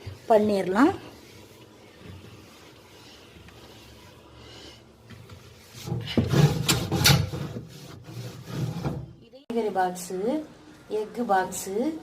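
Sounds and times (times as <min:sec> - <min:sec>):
towel scrubbing plastic containers: 0:00.0 - 0:09.0.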